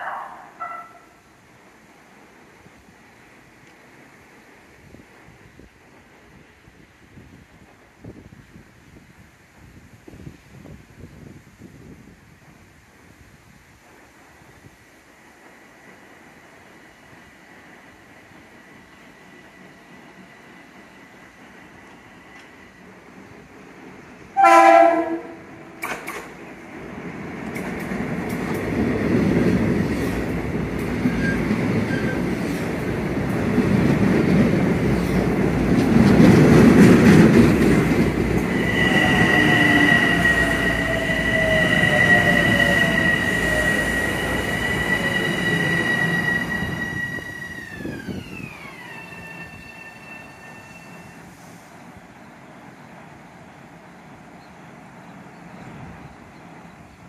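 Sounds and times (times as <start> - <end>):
electric train rumble: 0.0 - 57.0
high train whine: 0.0 - 57.0
train horn blast: 24.4 - 25.8, 38.4 - 47.2.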